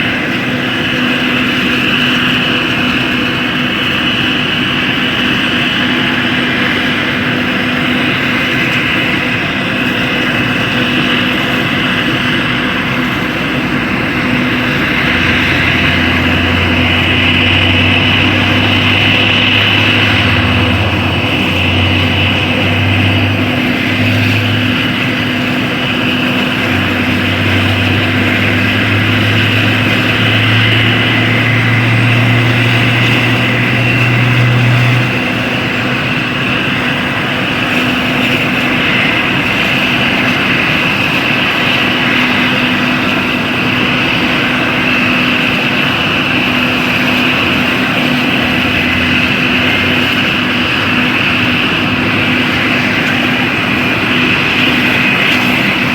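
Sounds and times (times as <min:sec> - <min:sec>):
helicopter rotor and turbine: 0:00.0 - 0:55.9
low hum rising in pitch: 0:10.4 - 0:37.2.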